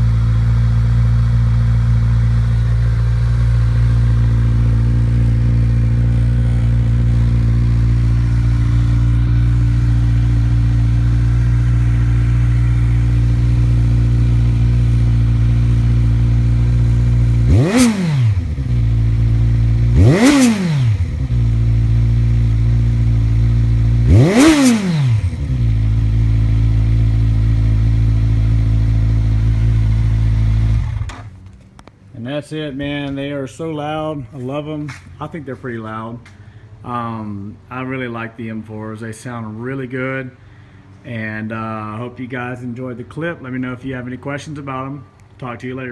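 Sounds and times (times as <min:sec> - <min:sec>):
engine throttle blips: 0:00.0 - 0:32.0
motorcycle engine idling: 0:00.0 - 0:32.0.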